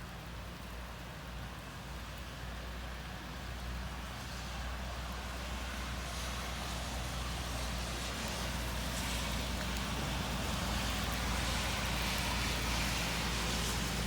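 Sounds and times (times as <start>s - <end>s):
heavy rain pouring: 3.0s - 14.0s.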